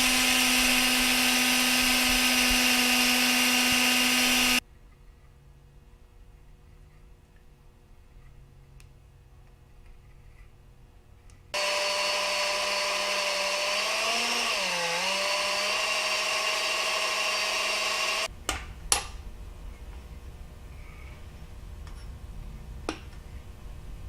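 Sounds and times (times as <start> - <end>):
electric drill whining: 0.0 - 4.6, 11.6 - 18.3.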